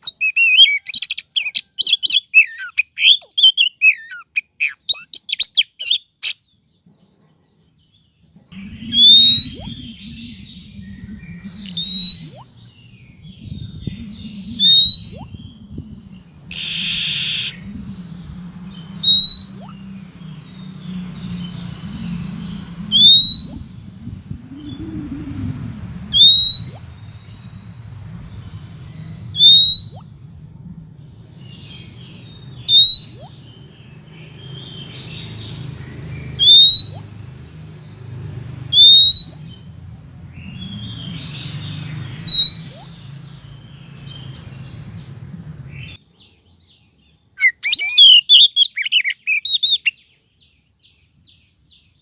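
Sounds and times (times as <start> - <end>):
bird chirps: 0.0 - 52.0
low hum: 8.4 - 32.8
sharp rising bird whistle: 8.6 - 15.8, 16.5 - 17.9, 18.8 - 19.9, 21.4 - 27.0, 29.2 - 30.2, 32.6 - 33.4, 36.4 - 37.2, 38.7 - 39.6, 42.2 - 43.1, 47.4 - 50.0.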